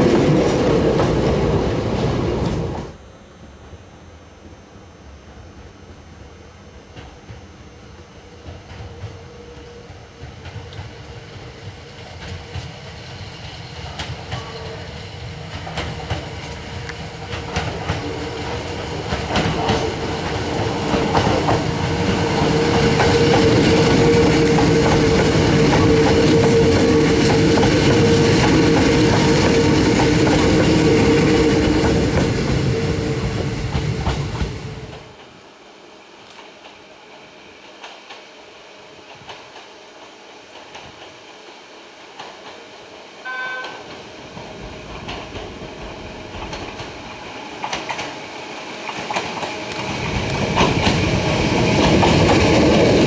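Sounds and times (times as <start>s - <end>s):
electric train passing: 0.0s - 53.0s
train wheels clicking over rail joints: 8.4s - 35.4s, 39.0s - 42.6s, 43.6s - 53.0s.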